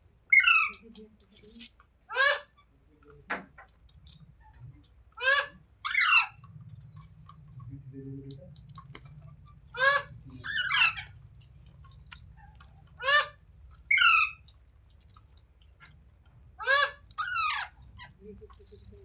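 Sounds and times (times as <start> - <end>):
parrot squawking harshly: 0.3 - 0.8, 2.1 - 2.5, 5.2 - 6.4, 9.7 - 11.1, 13.0 - 14.4, 16.6 - 18.1.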